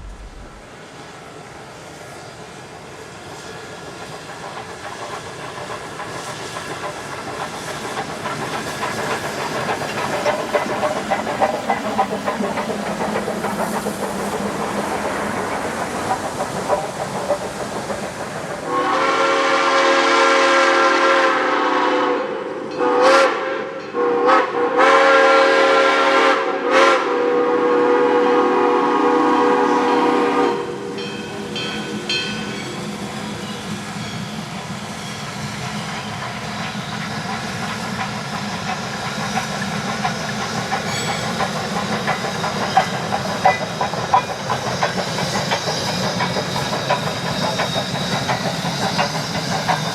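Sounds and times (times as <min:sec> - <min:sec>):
train rumble and wheel clatter: 0:00.0 - 0:49.9
steam locomotive whistle: 0:18.6 - 0:31.6.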